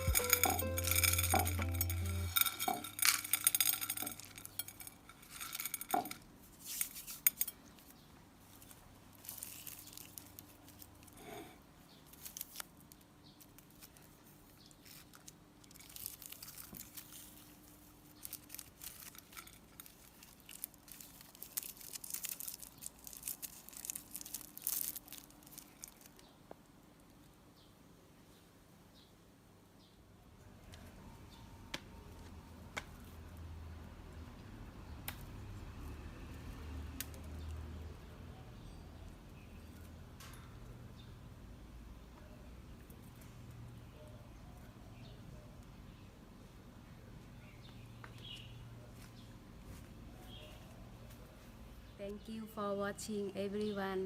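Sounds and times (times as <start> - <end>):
small objects clinking and tapping: 0.0 - 8.0, 14.8 - 26.3.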